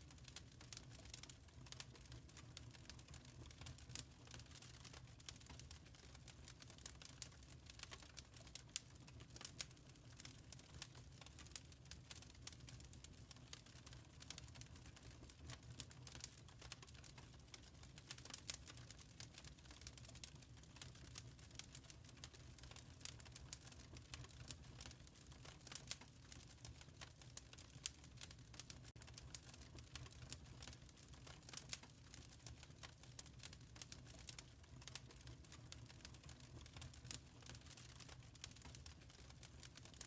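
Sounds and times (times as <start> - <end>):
wood fire crackling: 0.0 - 40.0.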